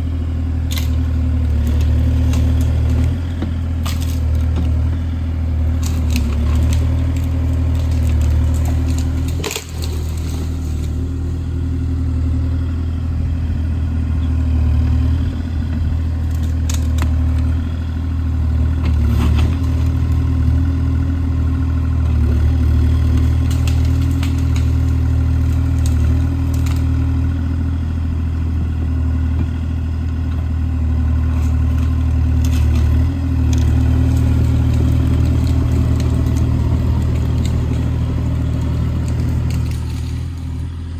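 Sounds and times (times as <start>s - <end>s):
excavator diesel engine running: 0.0s - 40.9s
sharp knocks and cracks: 0.7s - 4.9s, 5.6s - 11.0s, 16.2s - 17.6s, 22.8s - 27.2s, 31.3s - 40.6s.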